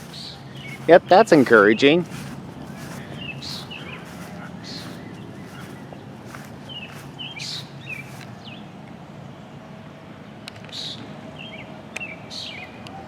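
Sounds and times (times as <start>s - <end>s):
raspy bird calls: 0.0s - 8.7s
birds chirping: 0.0s - 9.4s.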